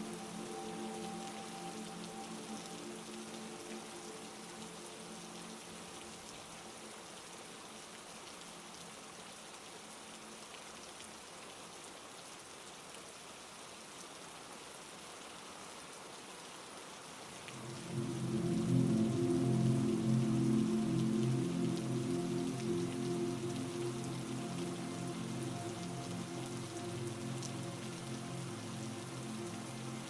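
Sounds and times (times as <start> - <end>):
low sustained musical tones: 0.0 - 9.0, 17.5 - 30.0
heavy rain falling: 0.0 - 30.0
loud low drone: 17.5 - 30.0.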